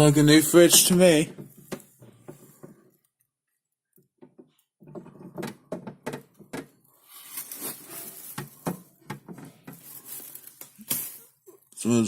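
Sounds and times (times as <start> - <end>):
rustling: 6.9 - 11.4.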